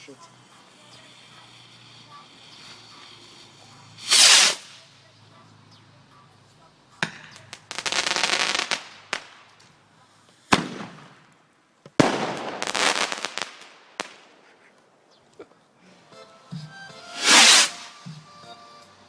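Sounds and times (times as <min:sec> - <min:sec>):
fireworks bangs: 0:00.0 - 0:05.0, 0:07.0 - 0:09.8, 0:10.4 - 0:14.9, 0:17.1 - 0:18.3
fireworks crackling: 0:00.0 - 0:19.0.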